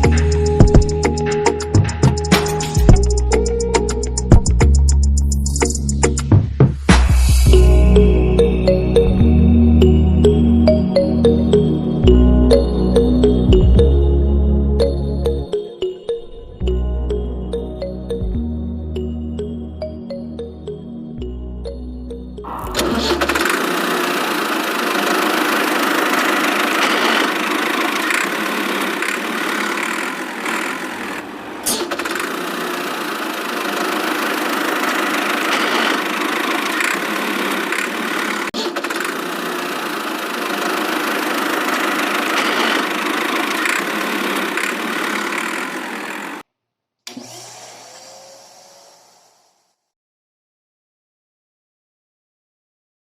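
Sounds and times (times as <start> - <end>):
motor clicks: 22.5 - 46.4, 47.1 - 49.7
small motor whirring: 22.5 - 46.4, 47.1 - 49.9.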